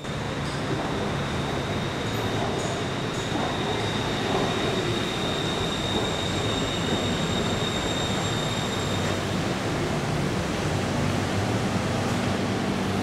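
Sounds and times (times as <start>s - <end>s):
high-pitched train whine: 0.0s - 13.0s
electric train braking: 0.5s - 9.4s.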